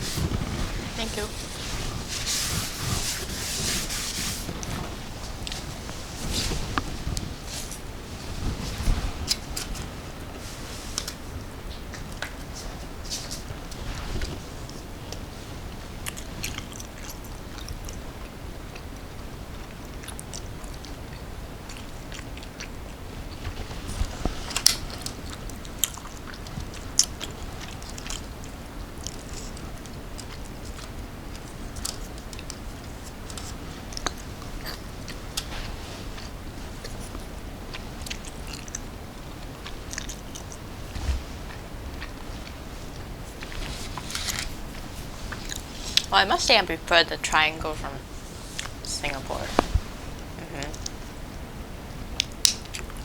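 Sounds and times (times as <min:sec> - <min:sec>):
wet chewing sounds: 0:10.9 - 0:46.1.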